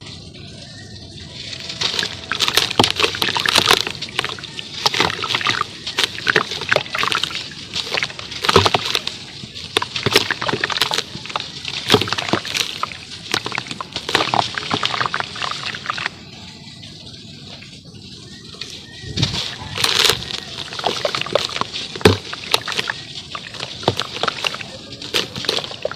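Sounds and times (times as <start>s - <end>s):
charcoal crackling in water: 0.9s - 25.9s
water sloshing: 1.4s - 16.2s, 18.6s - 25.9s.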